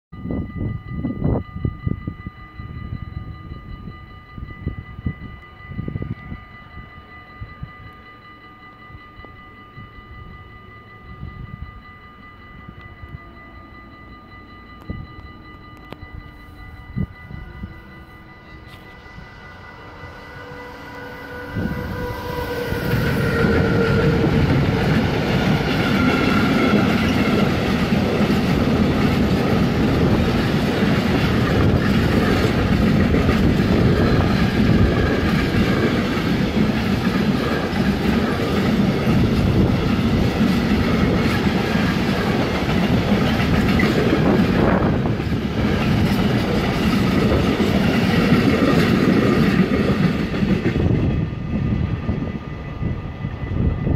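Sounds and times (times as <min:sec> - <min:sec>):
faint steady tones: 0:00.2 - 0:48.8
wagons rumbling and clattering over rails: 0:22.7 - 0:52.2.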